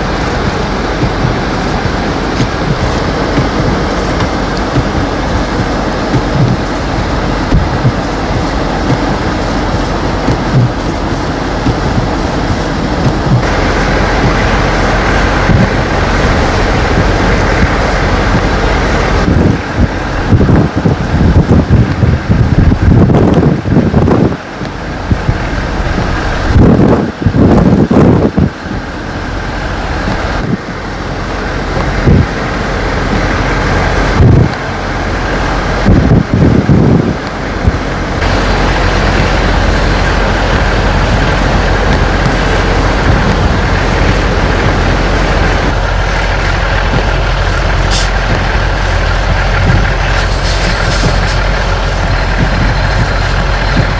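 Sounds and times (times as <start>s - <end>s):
blizzard wind blowing: 0.0s - 53.9s
wind buffeting microphone: 0.0s - 53.9s
sharp hiss: 46.7s - 52.3s.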